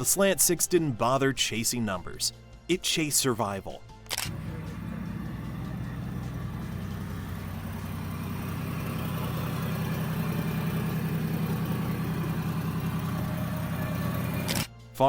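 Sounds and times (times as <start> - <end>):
car engine idling: 4.3 - 14.6.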